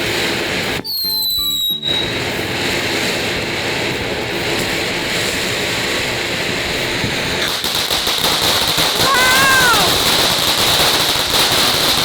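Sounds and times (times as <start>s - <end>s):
firework fountain hissing: 0.0s - 12.0s
high descending whistle: 0.8s - 2.3s.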